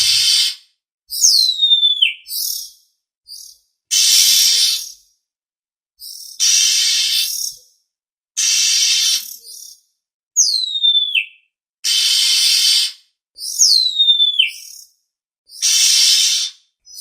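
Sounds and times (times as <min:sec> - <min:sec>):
bird harsh rasping call: 0:00.0 - 0:00.7, 0:03.9 - 0:05.0, 0:06.3 - 0:07.6, 0:08.4 - 0:09.7, 0:10.8 - 0:14.6, 0:15.5 - 0:17.0
bird whistle sliding downward: 0:06.4 - 0:07.5, 0:08.4 - 0:09.4, 0:15.6 - 0:17.0.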